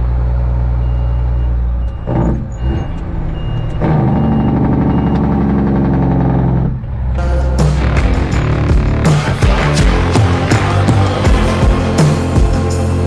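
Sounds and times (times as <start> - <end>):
truck diesel engine running: 7.2 - 13.0.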